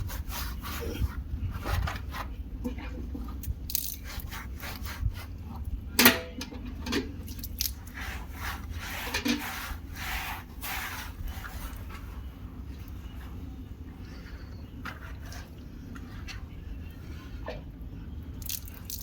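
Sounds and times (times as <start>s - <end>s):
hands scrubbing wet fur: 0.0s - 1.3s, 3.7s - 5.6s, 7.4s - 13.5s.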